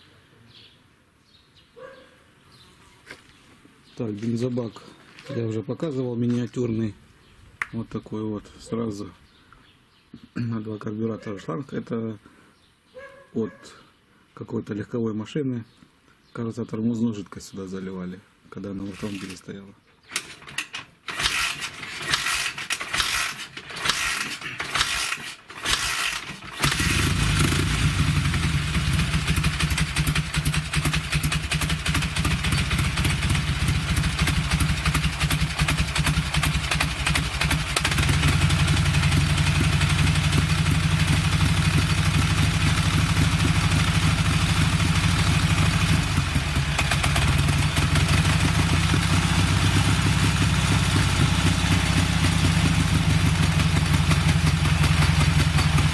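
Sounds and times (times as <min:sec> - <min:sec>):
motorcycle engine starting and running: 0:18.9 - 0:19.4, 0:20.1 - 0:55.9.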